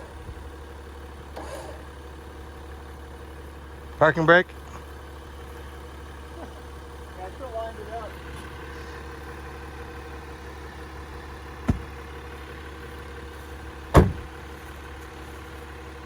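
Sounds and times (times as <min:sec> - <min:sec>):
car engine idling: 0:00.0 - 0:16.0
sharp knocks: 0:11.6 - 0:12.0, 0:13.9 - 0:14.3.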